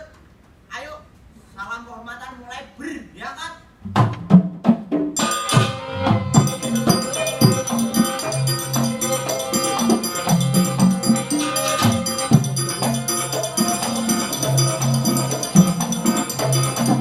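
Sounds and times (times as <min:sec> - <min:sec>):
traditional percussion ensemble: 0:03.8 - 0:17.0.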